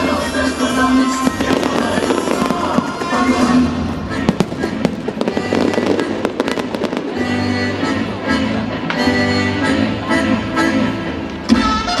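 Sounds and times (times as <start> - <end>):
fireworks bursting and crackling: 0.0 - 9.0
music playing: 0.0 - 12.0.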